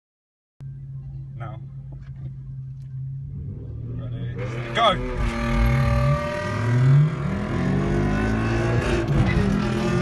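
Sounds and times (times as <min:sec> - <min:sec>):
car engine accelerating hard: 0:03.2 - 0:10.0.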